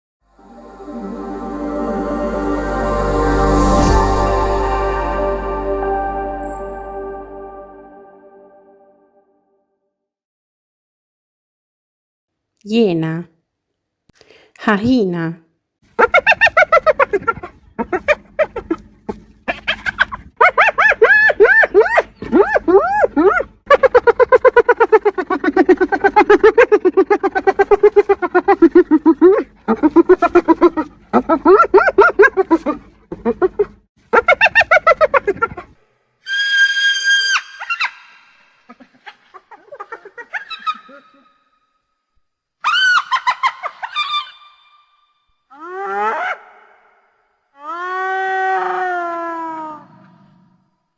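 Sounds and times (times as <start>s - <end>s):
hyena high-pitched squeal: 36.2s - 38.5s, 40.3s - 41.5s, 42.6s - 46.7s
hyena giggling: 38.7s - 41.2s.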